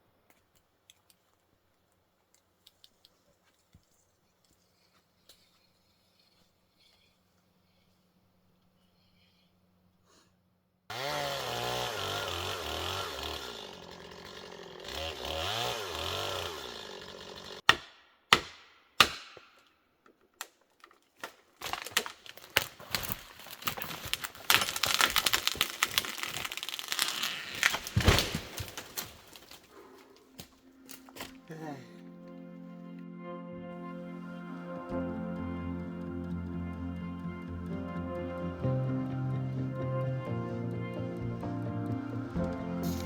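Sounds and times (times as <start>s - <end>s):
chainsaw revving: 10.9s - 17.7s, 24.7s - 28.0s, 34.9s - 43.0s
wood cracking and snapping: 18.4s - 31.4s.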